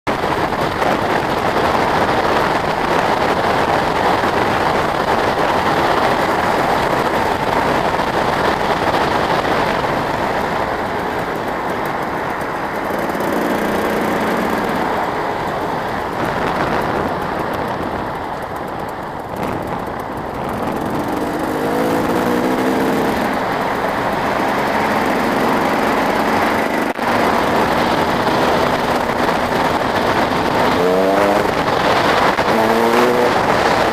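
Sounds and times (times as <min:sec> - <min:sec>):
motorcycle engines revving: 0:00.1 - 0:33.9.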